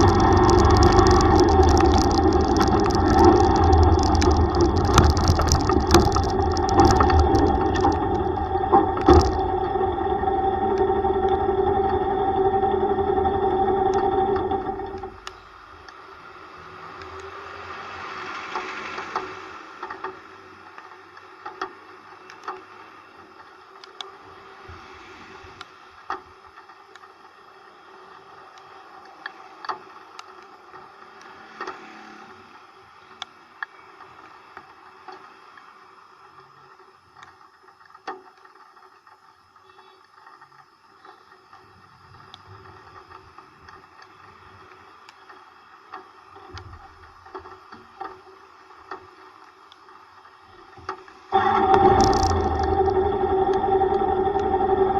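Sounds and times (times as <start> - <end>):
raindrops tapping camera: 0.0 - 16.0, 36.7 - 54.9
rain and wet road hiss: 0.0 - 54.9.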